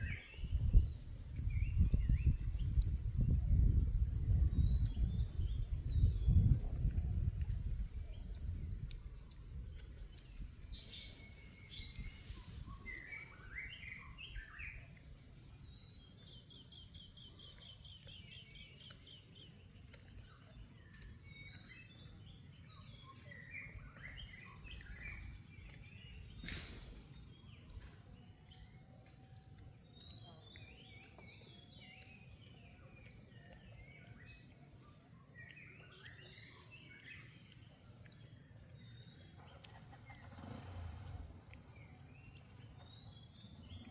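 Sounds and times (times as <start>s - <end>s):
birds chirping: 0.0s - 43.9s
low outdoor rumble: 0.0s - 43.9s
bird trill: 10.7s - 15.0s.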